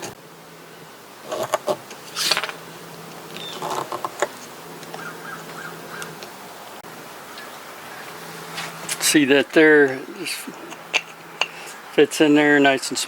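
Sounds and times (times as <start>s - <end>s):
steady low buzz: 0.0s - 13.0s
chisel scraping hardwood: 1.2s - 2.6s.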